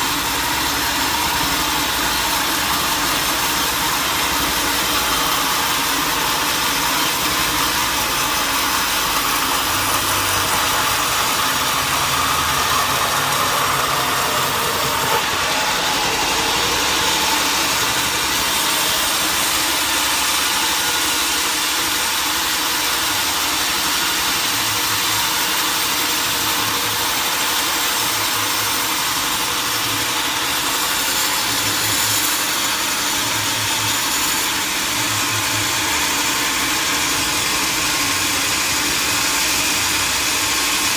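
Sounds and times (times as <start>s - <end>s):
sawmill machinery running: 0.0s - 40.9s.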